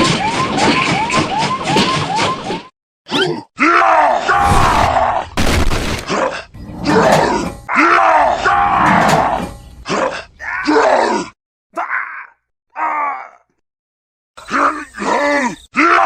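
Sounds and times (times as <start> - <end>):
noisy crash: 4.4 - 7.7.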